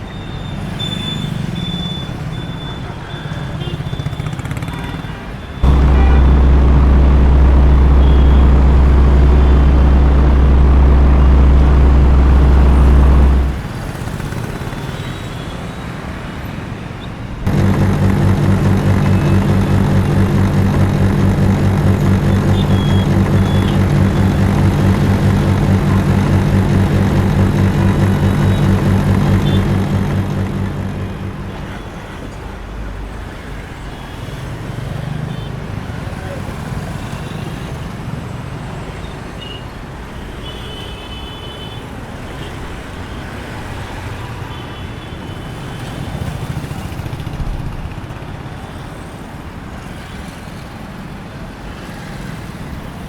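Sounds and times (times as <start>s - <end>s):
diesel engine low hum: 5.6s - 13.8s, 17.5s - 32.4s
pulsing diesel engine: 5.6s - 14.2s, 17.5s - 32.7s.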